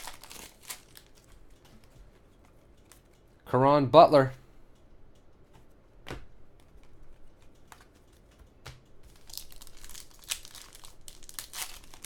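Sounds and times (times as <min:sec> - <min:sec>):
wrapper crinkling and tearing: 0:00.0 - 0:01.3, 0:09.1 - 0:12.0
cards tapping and clicking: 0:05.5 - 0:10.1.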